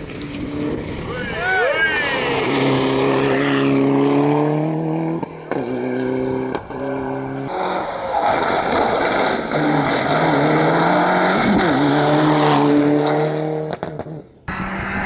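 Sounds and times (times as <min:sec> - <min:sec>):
rally car engine accelerating: 0:02.2 - 0:15.0
noisy rush: 0:14.5 - 0:15.0.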